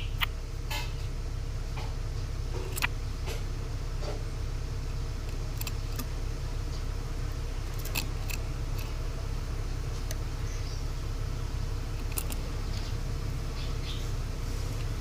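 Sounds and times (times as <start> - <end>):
bird chip calls: 0.0 - 0.4, 12.0 - 14.2
steady low hum: 0.0 - 15.0.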